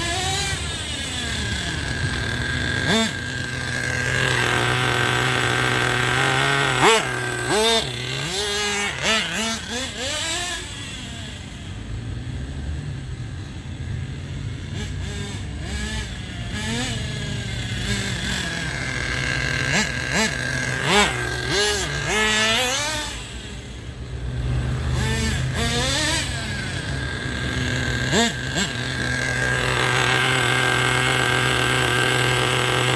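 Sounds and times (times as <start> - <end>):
small nitro engine running: 0.0 - 32.9.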